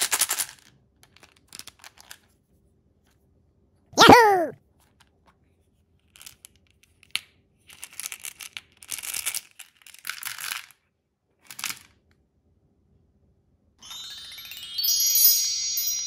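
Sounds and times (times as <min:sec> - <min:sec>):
candies rattling into plastic tub: 0:00.0 - 0:00.6.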